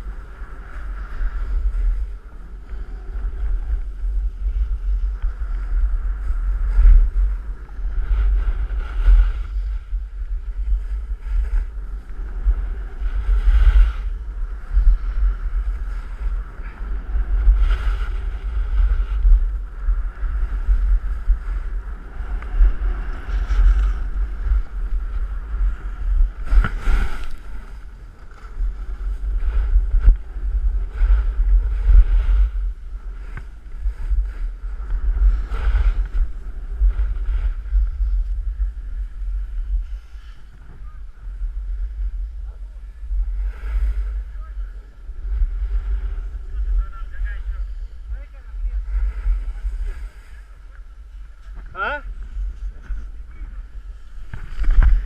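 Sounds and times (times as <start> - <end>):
wind buffeting microphone: 0.0 - 55.0
ski edges scraping snow: 10.4 - 40.5, 45.6 - 53.2.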